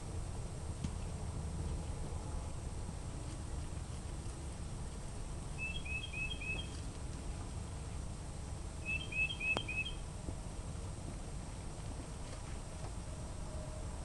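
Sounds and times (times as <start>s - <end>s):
low background rumble: 0.0s - 14.0s
bird chirping: 5.5s - 6.9s, 8.8s - 10.1s.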